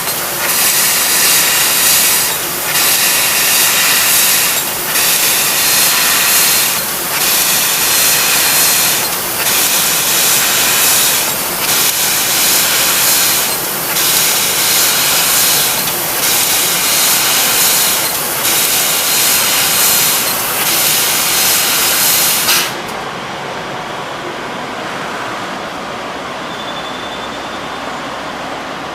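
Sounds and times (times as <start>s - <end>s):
loud hiss of assist gas: 0.0s - 22.9s
steady machine noise: 0.0s - 23.5s.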